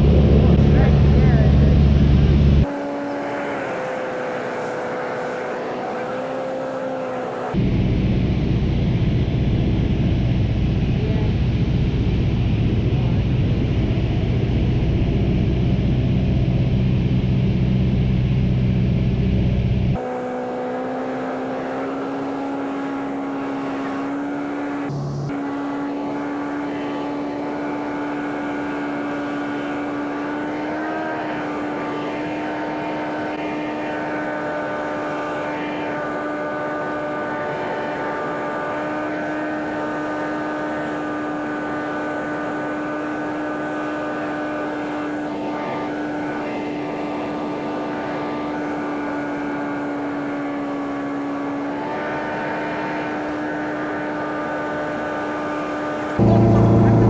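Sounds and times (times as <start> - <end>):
propeller airplane engine droning: 0.0 - 57.0.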